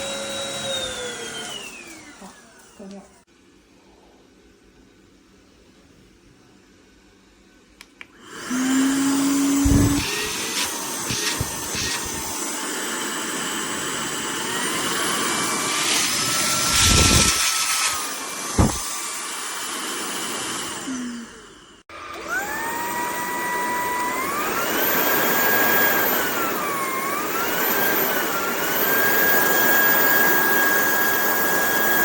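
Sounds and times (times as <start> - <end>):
stick vacuum cleaner running: 0.0 - 3.2, 8.1 - 32.0
thumps: 18.5 - 18.9.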